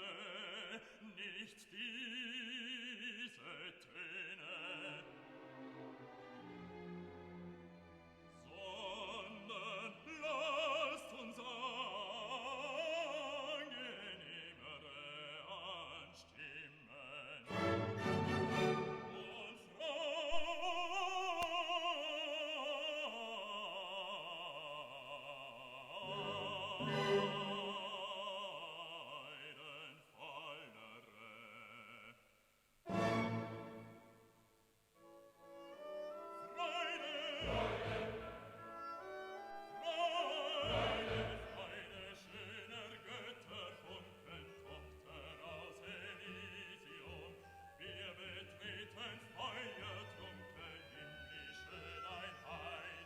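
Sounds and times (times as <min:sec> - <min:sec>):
operatic voice singing: 0:00.0 - 0:05.4, 0:08.4 - 0:32.1, 0:36.2 - 0:53.0
orchestral accompaniment: 0:17.5 - 0:19.6, 0:26.0 - 0:27.9, 0:32.9 - 0:34.1, 0:35.2 - 0:42.0.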